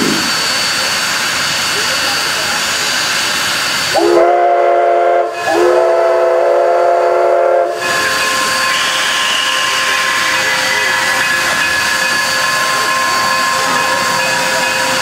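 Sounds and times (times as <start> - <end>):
steam hissing: 0.0 - 15.0
steam whistle blasts: 4.0 - 15.0.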